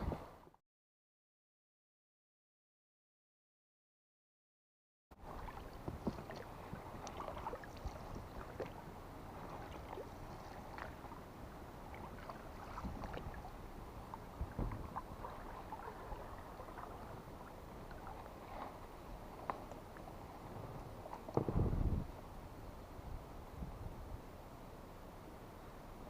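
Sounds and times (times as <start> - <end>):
water slapping against boat hull: 5.2 - 8.8, 9.4 - 11.2, 11.9 - 22.1.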